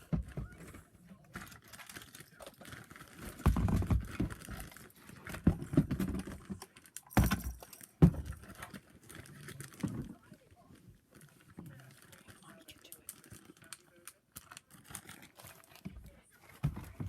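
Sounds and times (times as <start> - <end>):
small objects clicking and rattling: 1.3 - 10.2, 11.1 - 15.8.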